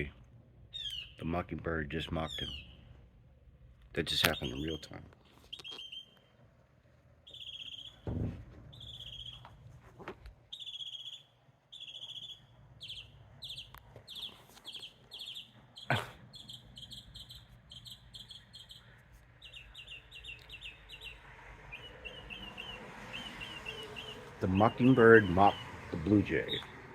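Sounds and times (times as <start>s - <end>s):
mockingbird singing: 0.7s - 1.3s, 2.2s - 2.9s, 4.1s - 6.3s, 7.2s - 8.1s, 8.7s - 9.5s, 10.5s - 26.8s
low thump: 8.1s - 8.7s.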